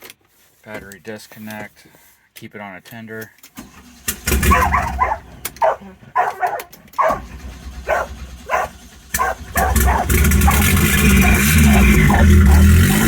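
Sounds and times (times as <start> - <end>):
car engine running: 4.1 - 13.0
dog barking: 4.4 - 13.0.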